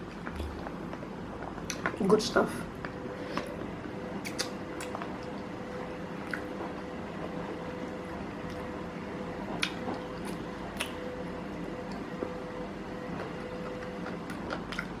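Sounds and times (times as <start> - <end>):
steady low hum: 0.0 - 15.0
wet mouth clicks and smacks: 4.2 - 5.0, 10.8 - 11.0
close chewing: 13.2 - 15.0.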